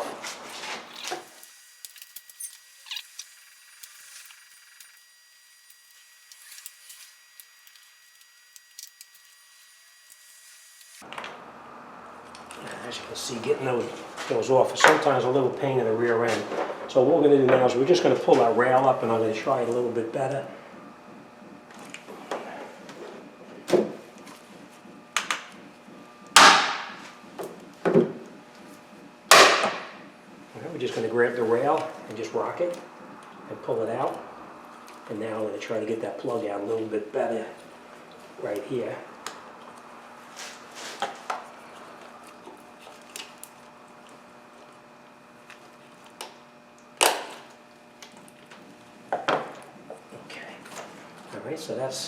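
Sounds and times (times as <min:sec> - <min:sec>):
faint high whine: 0:01.0 - 0:11.0.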